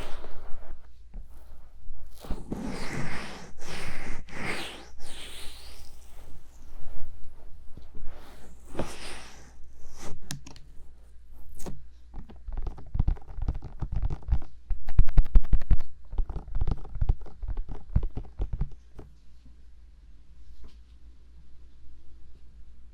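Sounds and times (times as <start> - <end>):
fingertips rubbing microphone: 0.0 - 10.3.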